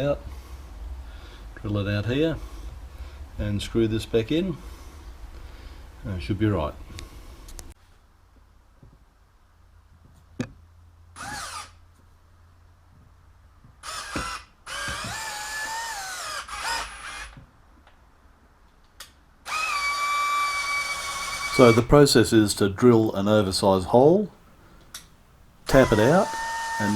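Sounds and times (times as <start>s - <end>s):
power drill whining: 11.2s - 11.8s, 13.8s - 17.4s, 19.5s - 22.1s, 25.6s - 26.9s.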